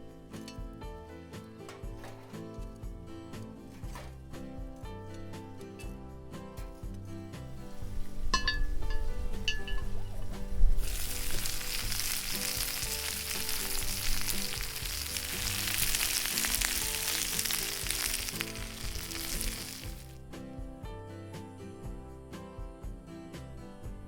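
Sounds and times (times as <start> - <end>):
background music: 0.0 - 24.0
food sizzling in skillet: 7.7 - 20.2.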